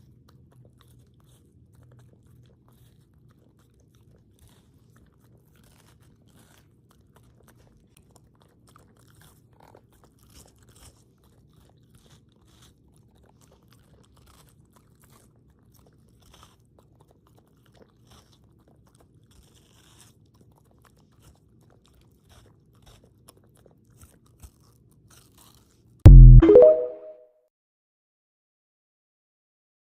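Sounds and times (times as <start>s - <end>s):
chewing and crunching watermelon: 0.0s - 26.0s
loud pitched tone: 26.1s - 27.1s.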